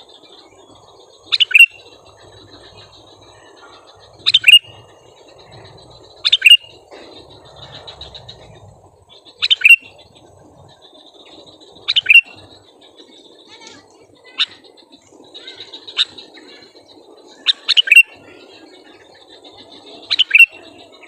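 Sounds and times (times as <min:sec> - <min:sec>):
bulbul chirping: 0:01.3 - 0:12.6, 0:17.5 - 0:18.1, 0:20.1 - 0:20.6.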